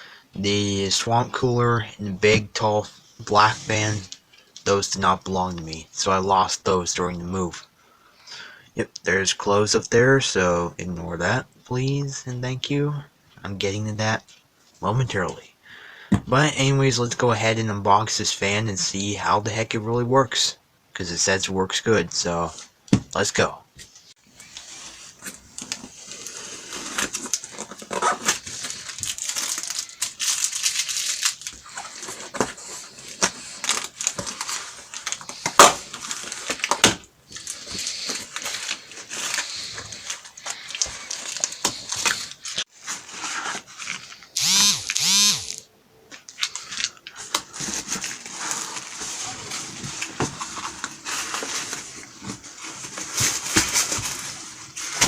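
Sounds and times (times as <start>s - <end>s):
tape tearing: 24.5s - 42.6s, 43.2s - 45.7s.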